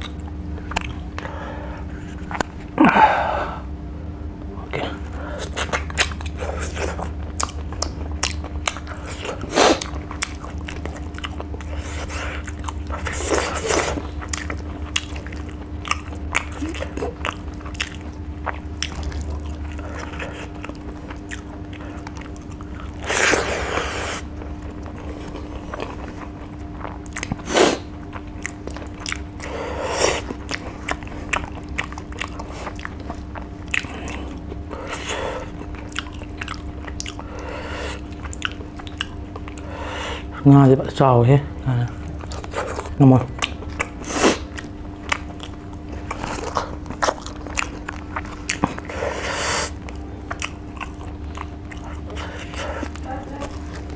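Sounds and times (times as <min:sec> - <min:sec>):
wet mouth clicks and crunches: 0:00.0 - 0:01.3, 0:05.4 - 0:23.5, 0:24.2 - 0:29.5, 0:42.1 - 0:48.9
chewing and biting food: 0:00.0 - 0:02.8, 0:04.8 - 0:53.9.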